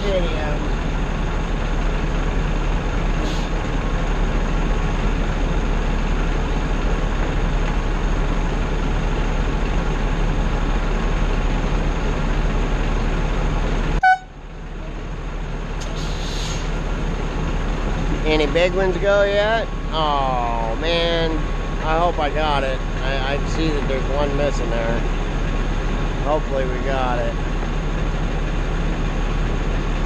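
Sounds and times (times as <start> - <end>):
vehicle engine idling: 0.0 - 30.0
short beep: 14.0 - 14.3.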